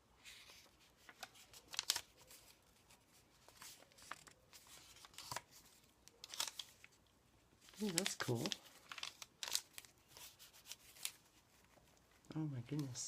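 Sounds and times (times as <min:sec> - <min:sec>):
paper pages rustling: 0:00.0 - 0:13.0
paper clicks: 0:00.2 - 0:07.0, 0:07.6 - 0:12.0.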